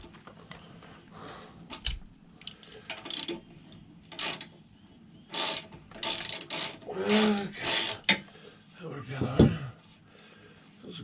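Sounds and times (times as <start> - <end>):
socket wrench ratcheting: 1.7 - 3.4, 4.1 - 4.5, 5.3 - 8.2.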